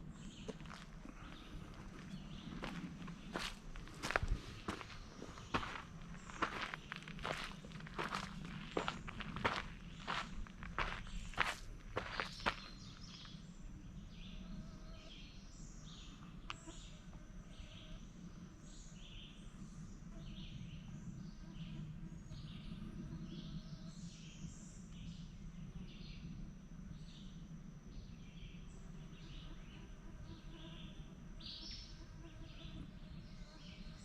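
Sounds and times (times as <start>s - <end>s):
faint low hum: 0.0s - 34.0s
footsteps: 0.4s - 12.8s.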